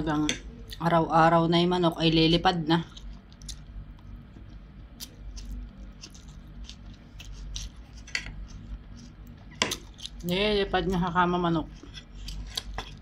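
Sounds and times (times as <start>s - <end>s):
close chewing of rice: 2.9s - 10.3s, 11.6s - 13.0s.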